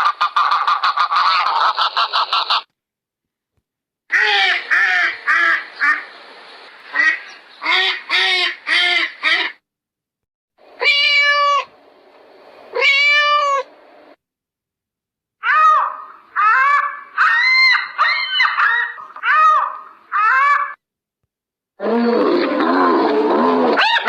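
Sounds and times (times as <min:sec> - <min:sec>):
long even-pitched animal calls: 0:15.4 - 0:20.8, 0:21.8 - 0:24.0.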